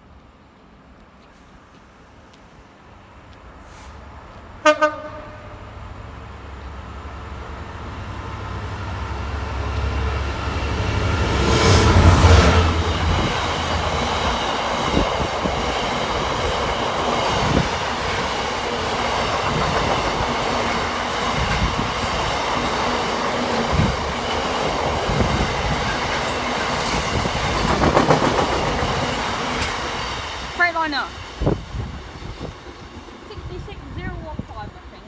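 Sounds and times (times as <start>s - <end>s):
train wagons rolling: 5.7s - 35.0s.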